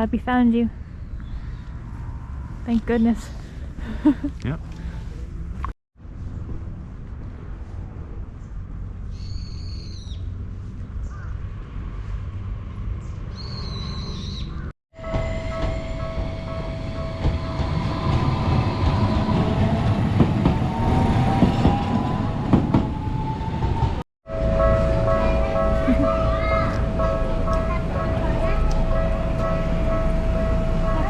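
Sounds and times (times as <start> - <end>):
rumbling wheels on rails: 15.0 - 31.0
tram motor whine: 15.0 - 31.0.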